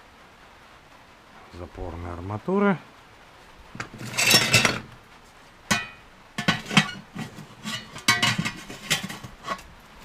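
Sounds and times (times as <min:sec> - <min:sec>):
steel parts clinking and knocking: 0:04.0 - 0:04.9, 0:05.7 - 0:09.6.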